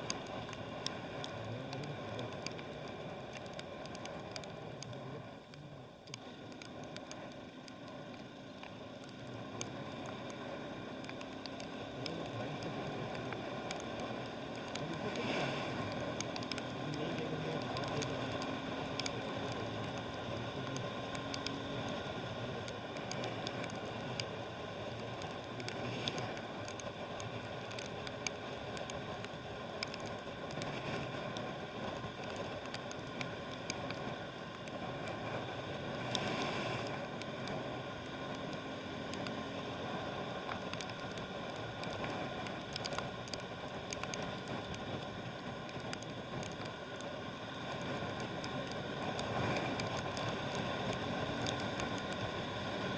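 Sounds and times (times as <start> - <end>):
tyres hissing on wet road: 0.0 - 52.9
wind: 0.0 - 52.9
water drops ticking: 24.9 - 30.7.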